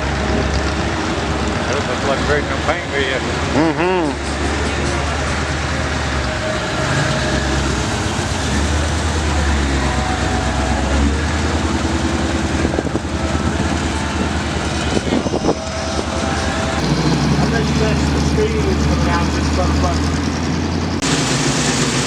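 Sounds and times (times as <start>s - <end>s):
car engine exhaust pulsing: 0.0s - 22.0s.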